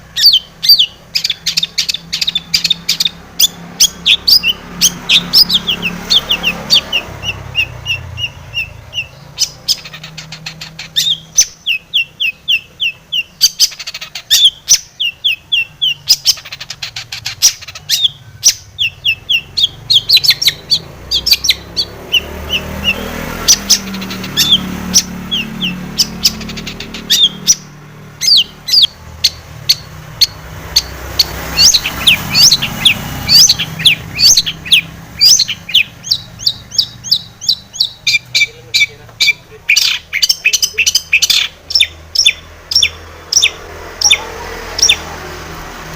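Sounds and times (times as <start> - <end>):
bird chattering song: 0.0 - 45.2.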